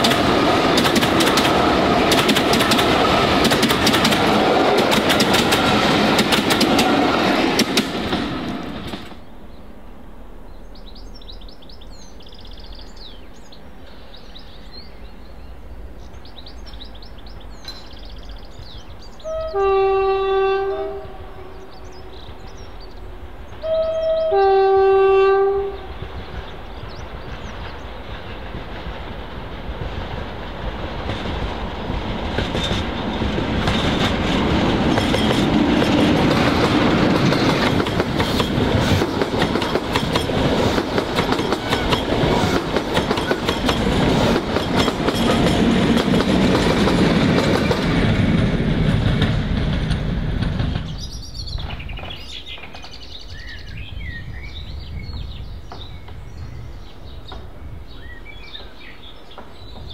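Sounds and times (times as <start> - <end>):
wheels clattering over rail joints: 0.0 - 9.2, 31.0 - 53.1
diesel train passing: 0.0 - 59.9
birdsong: 8.7 - 29.5, 50.6 - 59.9.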